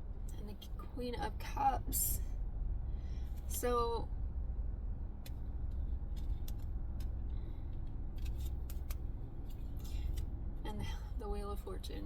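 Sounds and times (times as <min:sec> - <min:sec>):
steady low rumble: 0:00.0 - 0:12.0
cards clicking and snapping: 0:07.8 - 0:10.3.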